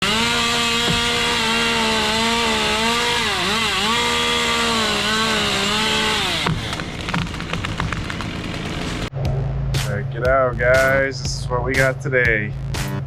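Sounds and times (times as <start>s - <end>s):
chainsaw running at high revs: 0.0s - 9.1s.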